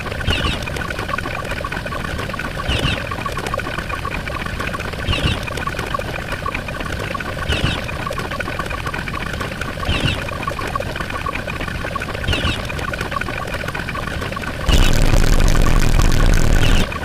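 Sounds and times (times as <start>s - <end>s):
rapid even ticking: 14.7s - 16.9s.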